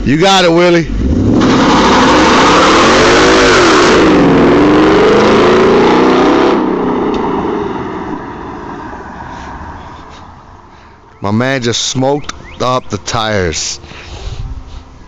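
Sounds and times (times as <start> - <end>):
car engine revving: 0.0 - 10.6
spinning tires hissing: 0.9 - 11.0.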